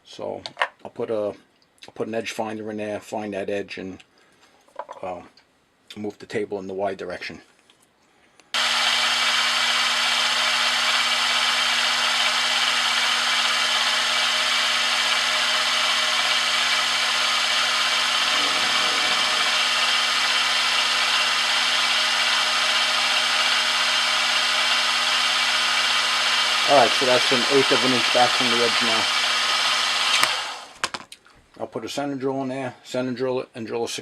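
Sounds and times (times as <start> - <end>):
milling machine spindle whirring: 8.6 - 30.8.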